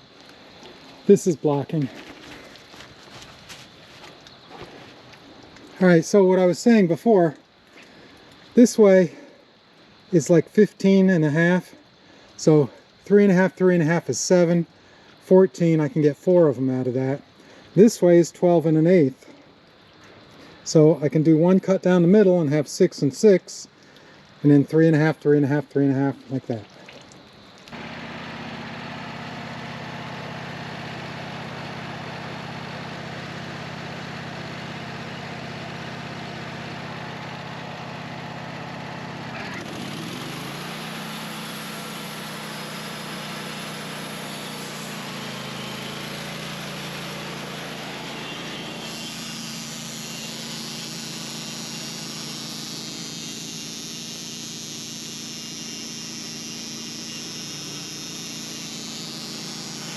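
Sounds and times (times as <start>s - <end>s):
sawmill engine running: 27.7s - 59.9s.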